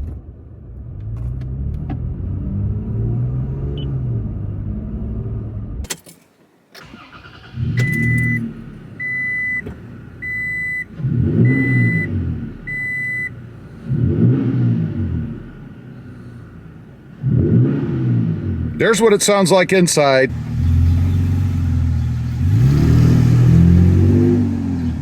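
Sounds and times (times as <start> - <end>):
truck engine revving: 6.8 - 25.0
dash warning chime beeping: 7.8 - 9.6, 10.2 - 10.9, 11.5 - 12.1, 12.7 - 13.3.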